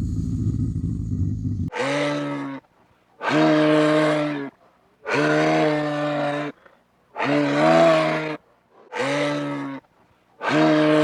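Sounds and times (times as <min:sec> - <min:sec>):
animal calling: 0:00.0 - 0:02.4.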